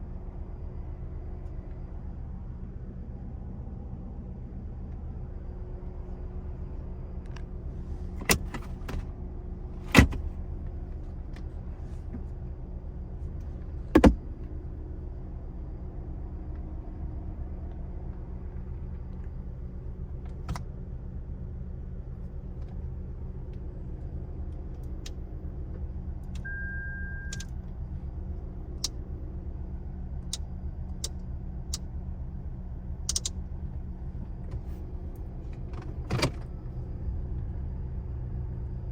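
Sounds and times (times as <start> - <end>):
car interior controls clicking: 8.2 - 9.0, 9.9 - 10.3, 14.0 - 14.2
short electronic beep: 26.4 - 27.5.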